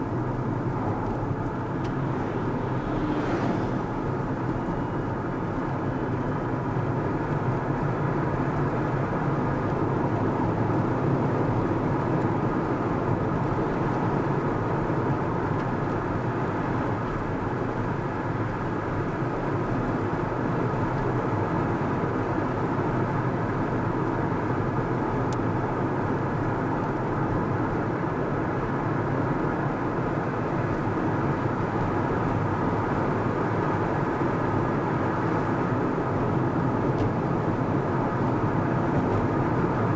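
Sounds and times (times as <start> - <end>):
car driving with tyre rumble: 0.0 - 39.9.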